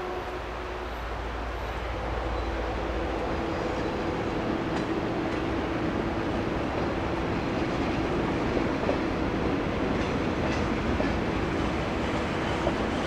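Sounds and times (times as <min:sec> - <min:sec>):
train engine drone: 0:00.0 - 0:13.0
faint clicks of wheels on track: 0:04.6 - 0:05.5, 0:09.9 - 0:11.2.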